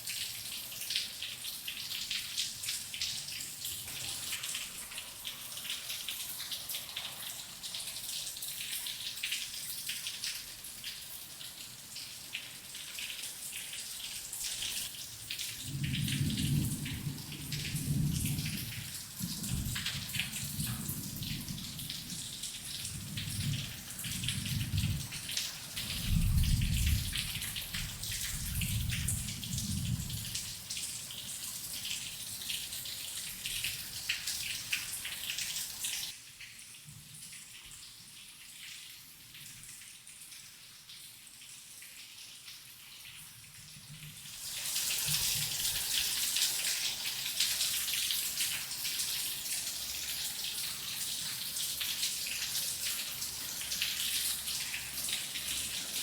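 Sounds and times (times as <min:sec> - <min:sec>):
heavy rain pattering: 0:14.6 - 0:31.2
rolling thunder: 0:15.6 - 0:21.8, 0:23.0 - 0:25.1, 0:25.9 - 0:30.4.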